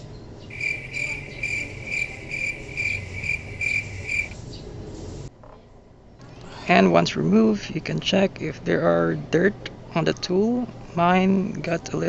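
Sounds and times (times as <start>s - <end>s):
faint low hum: 0.0s - 5.3s
insect chirping trill: 0.5s - 4.4s.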